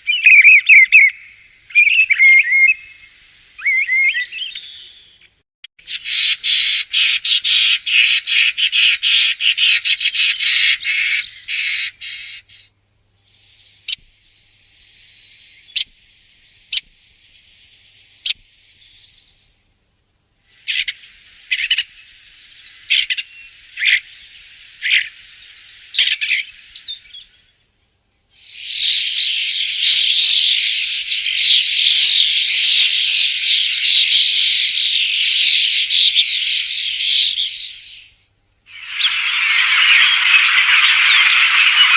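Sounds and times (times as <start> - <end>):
short bird whistles: 3.6 - 5.0.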